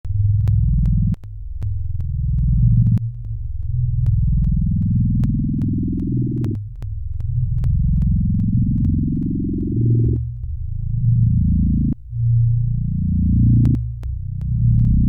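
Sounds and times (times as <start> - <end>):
electronic noise music: 0.1 - 15.0
sharp clicks: 0.3 - 10.5.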